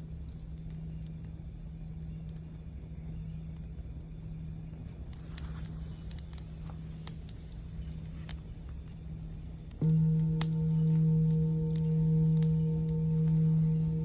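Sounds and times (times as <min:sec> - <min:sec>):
campfire crackling and popping: 0:00.0 - 0:14.0
singing bowl ringing: 0:09.8 - 0:14.0.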